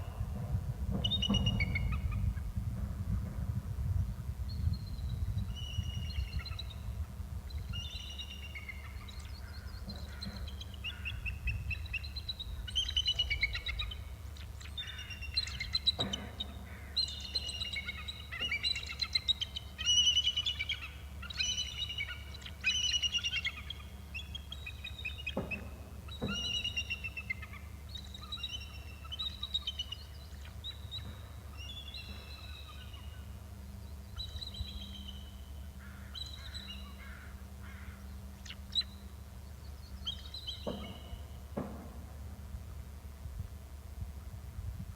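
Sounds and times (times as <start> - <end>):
birds whistling down-slurred notes: 4.5 - 37.0.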